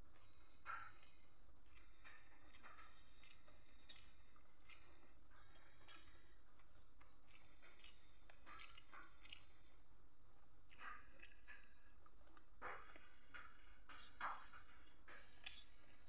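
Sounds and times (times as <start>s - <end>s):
fingers squishing rice: 0.0s - 9.8s, 10.6s - 16.0s
wet mouth chewing clicks: 1.7s - 5.0s, 7.3s - 9.6s, 15.4s - 15.7s.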